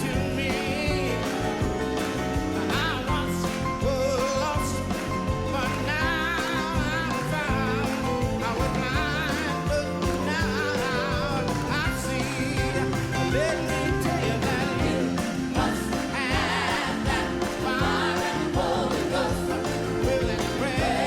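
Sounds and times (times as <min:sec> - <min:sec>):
backing band: 0:00.0 - 0:21.0.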